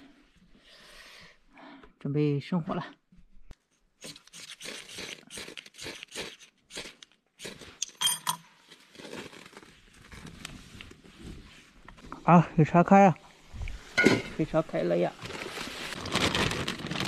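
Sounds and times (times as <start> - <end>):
metallic clink: 7.8 - 8.5.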